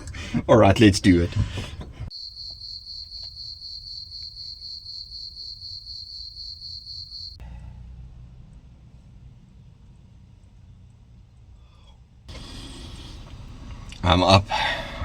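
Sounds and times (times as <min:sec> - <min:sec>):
cricket chirping: 0:02.1 - 0:07.4.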